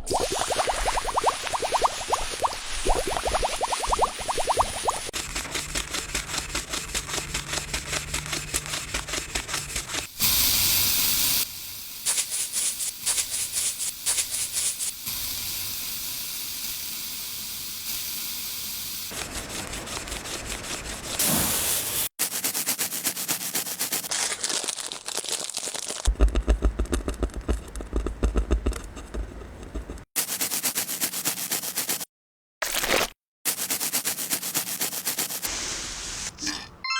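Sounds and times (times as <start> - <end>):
coin scrubbing strokes: 4.8 - 10.2, 19.1 - 24.1, 27.0 - 32.1, 33.5 - 36.7
steady hiss: 10.2 - 19.4.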